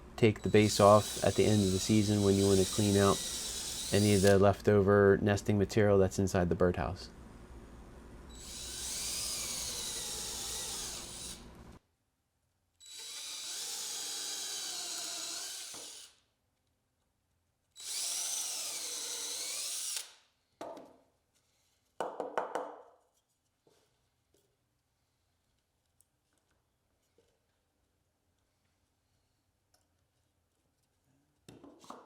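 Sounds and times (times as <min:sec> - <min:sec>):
power drill driving screws: 0:00.4 - 0:04.4, 0:08.3 - 0:11.4, 0:12.8 - 0:16.2, 0:17.8 - 0:20.2.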